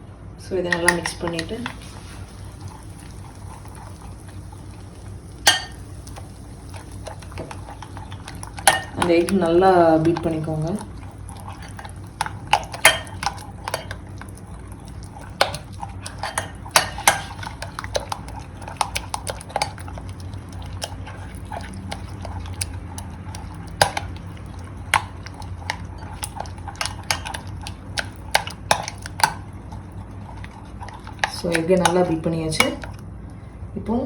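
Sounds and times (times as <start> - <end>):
utensil clinking against bowl: 0.7 - 1.9, 5.4 - 6.2, 6.8 - 14.0, 14.8 - 29.4
liquid being stirred: 0.7 - 33.4.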